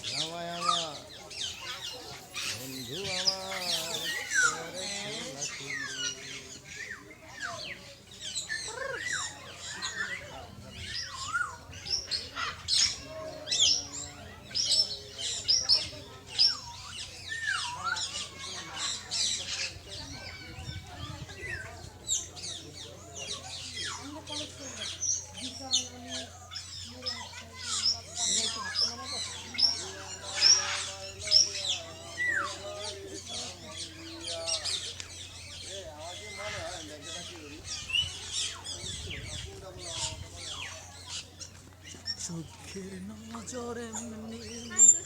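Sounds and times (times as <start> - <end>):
faint background voices: 0.0 - 45.0
parrots chirping and chattering: 0.0 - 45.0.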